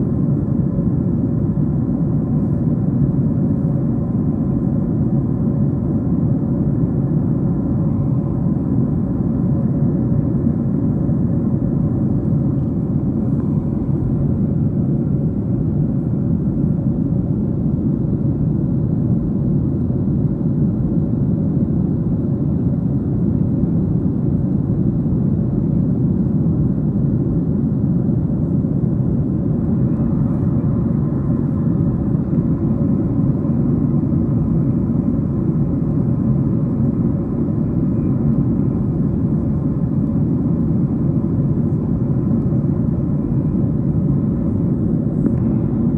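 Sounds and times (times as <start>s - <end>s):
airplane cabin rumble: 0.0s - 45.9s
faint steady engine tones: 41.7s - 45.9s.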